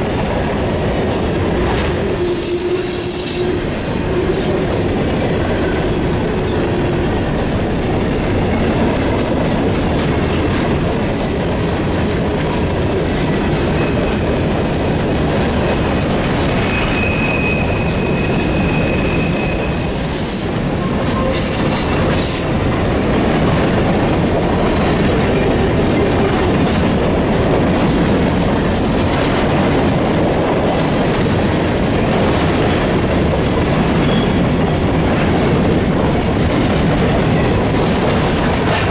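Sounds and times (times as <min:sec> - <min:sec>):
train wheels rumbling on rail: 0:00.0 - 0:38.9
high wheel squeal: 0:01.8 - 0:03.8, 0:16.6 - 0:22.0.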